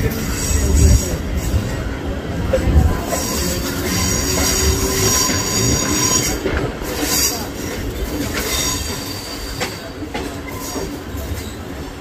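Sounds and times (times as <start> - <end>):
train running noise: 0.0 - 12.0
train wheel squeal: 3.0 - 11.9
sharp clacks from rails: 3.0 - 12.0.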